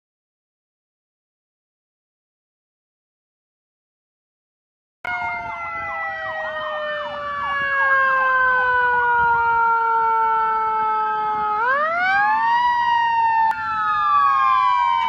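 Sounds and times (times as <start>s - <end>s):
long gliding siren tone: 5.1s - 15.0s
yelping siren: 5.1s - 15.0s.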